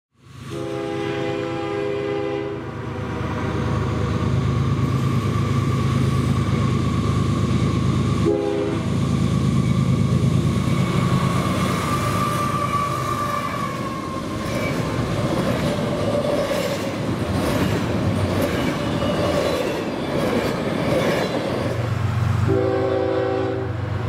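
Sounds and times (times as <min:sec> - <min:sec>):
train air horn: 0:00.4 - 0:03.5, 0:08.2 - 0:09.0, 0:10.9 - 0:14.2, 0:22.4 - 0:23.9
locomotive rumble: 0:00.6 - 0:24.0.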